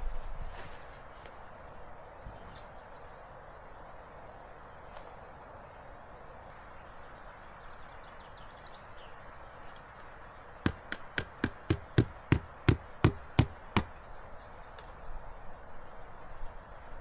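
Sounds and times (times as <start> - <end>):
hammer blows: 10.7 - 14.0.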